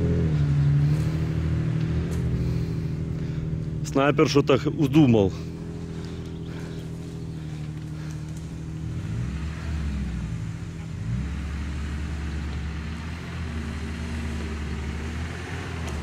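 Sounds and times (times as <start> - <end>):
engine revving under load: 0.0 - 16.0.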